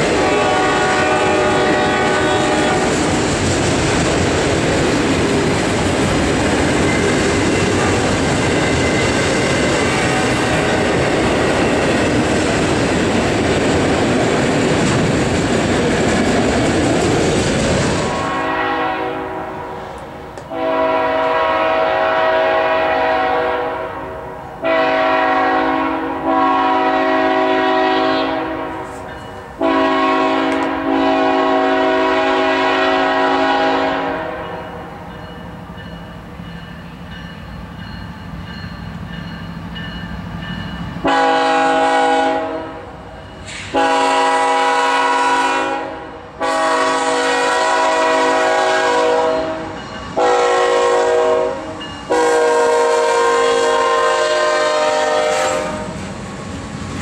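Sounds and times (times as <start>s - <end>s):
train horn blasts: 0.0s - 3.1s, 7.7s - 8.8s, 9.8s - 10.9s, 18.0s - 35.0s, 41.0s - 56.0s.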